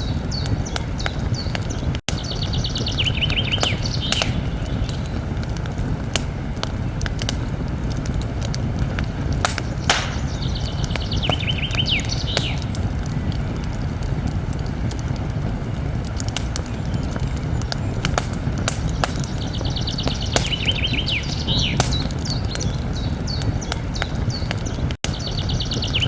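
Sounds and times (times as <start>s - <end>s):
campfire crackling and popping: 0.0s - 26.0s
bird trilling: 9.6s - 12.6s.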